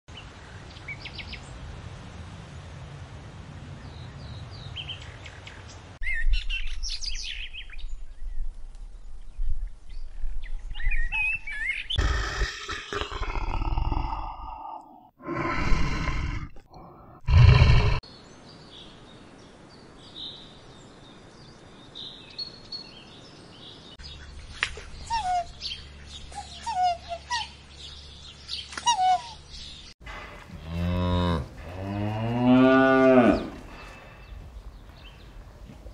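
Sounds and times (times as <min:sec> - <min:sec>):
birds chirping: 0:03.8 - 0:35.9
bears growling: 0:12.0 - 0:18.0.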